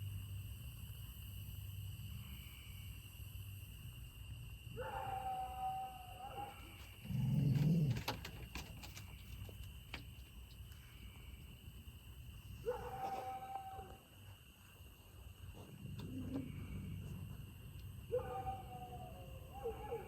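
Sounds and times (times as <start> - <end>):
animal howling: 18.1 - 20.0.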